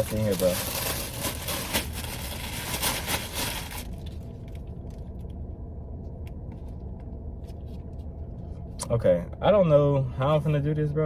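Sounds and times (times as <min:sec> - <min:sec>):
rustling and scraping of packaging: 0:00.0 - 0:05.0
low steady hum: 0:00.0 - 0:11.0.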